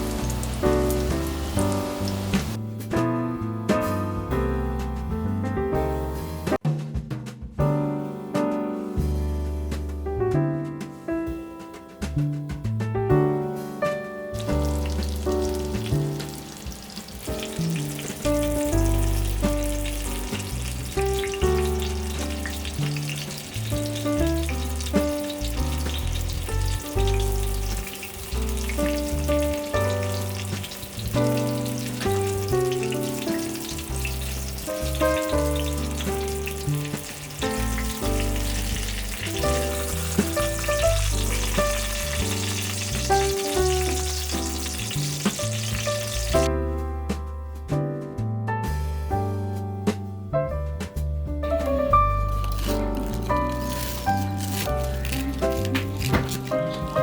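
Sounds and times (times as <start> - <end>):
cutlets sizzling in hot oil: 0.0 - 2.6, 14.4 - 46.5, 52.2 - 57.0
background music with bass line: 0.0 - 57.0.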